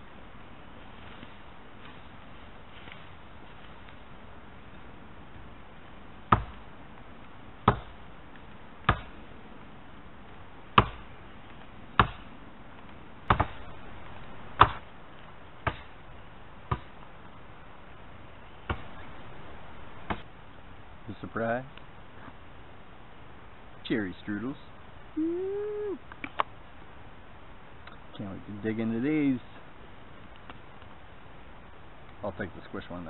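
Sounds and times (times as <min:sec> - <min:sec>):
axe chopping wood: 0:06.3 - 0:06.6, 0:07.6 - 0:08.0, 0:08.8 - 0:09.2, 0:10.8 - 0:11.1, 0:12.0 - 0:12.3, 0:13.3 - 0:13.6, 0:14.6 - 0:14.9, 0:15.6 - 0:16.0, 0:16.7 - 0:17.0, 0:20.1 - 0:20.3.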